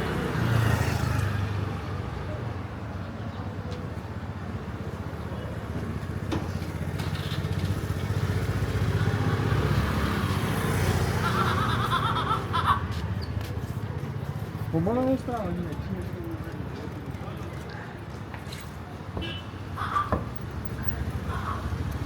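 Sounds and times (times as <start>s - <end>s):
motorcycle engine rumbling: 4.2s - 13.4s.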